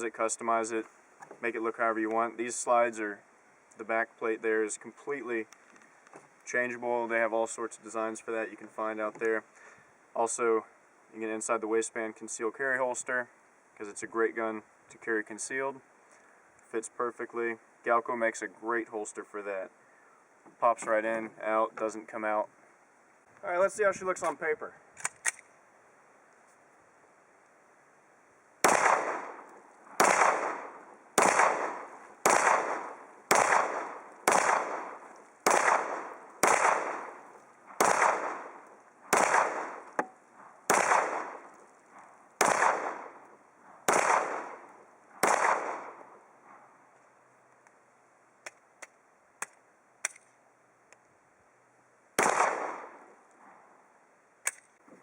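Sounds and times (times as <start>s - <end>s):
pistol shots with echo: 28.6s - 37.2s, 37.8s - 40.1s, 40.7s - 41.5s, 42.4s - 43.2s, 43.9s - 46.2s, 52.2s - 53.0s.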